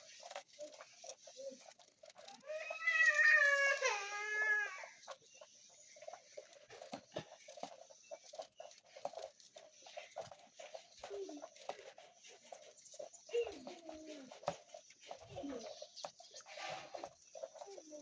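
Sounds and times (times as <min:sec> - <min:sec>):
cat meowing: 0:02.4 - 0:04.8.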